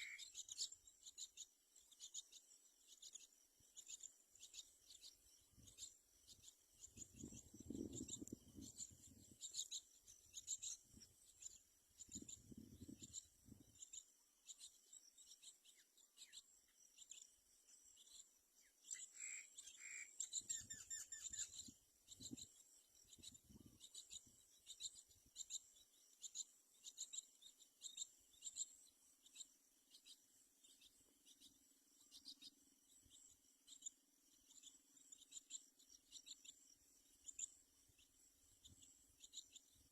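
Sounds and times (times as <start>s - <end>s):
short bird calls: 0.0s - 0.7s, 18.9s - 21.7s
insect chirping: 0.0s - 39.9s.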